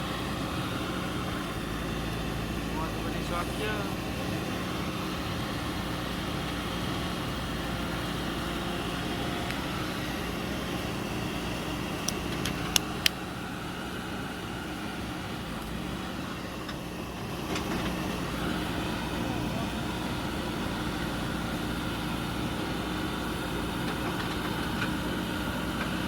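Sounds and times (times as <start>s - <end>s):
diesel engine running: 0.0s - 26.0s
sharp clicks: 12.0s - 13.2s.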